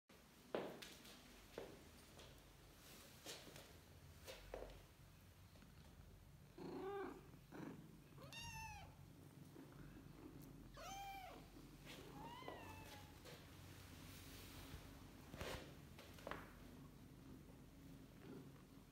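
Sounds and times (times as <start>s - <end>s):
kitten meowing: 8.2s - 8.9s, 10.8s - 11.4s.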